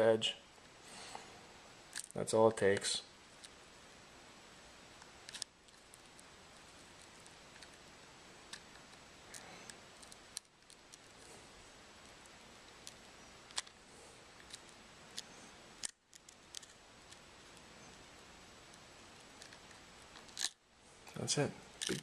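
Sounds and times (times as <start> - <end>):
low steady hiss: 0.0 - 22.0.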